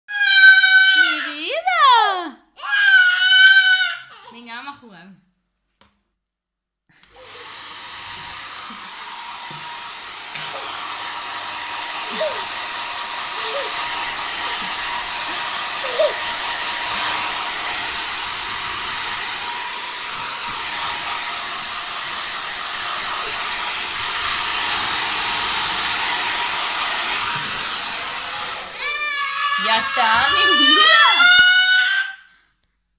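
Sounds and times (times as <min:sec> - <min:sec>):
hair dryer blowing: 0:00.1 - 0:02.0, 0:02.6 - 0:04.7, 0:06.9 - 0:32.4.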